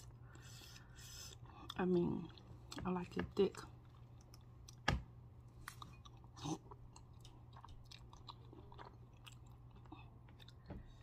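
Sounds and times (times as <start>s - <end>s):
mouth chewing food: 5.6s - 11.0s.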